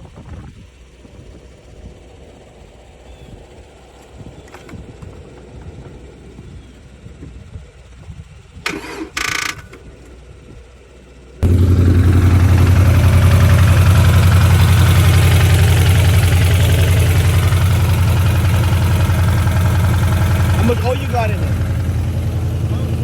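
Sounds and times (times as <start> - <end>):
car engine starting and idling: 8.7 - 23.0.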